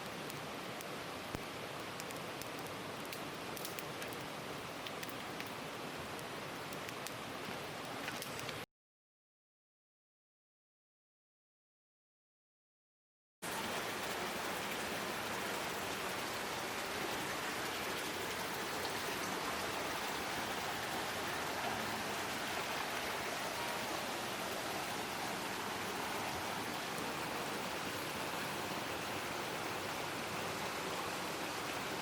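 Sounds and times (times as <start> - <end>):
mountain stream rushing: 13.4 - 32.0.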